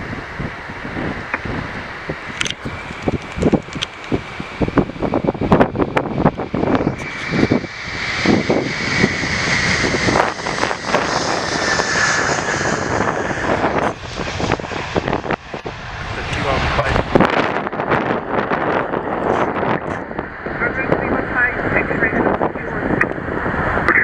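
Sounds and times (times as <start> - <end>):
jet engines at full thrust: 0.0 - 24.0.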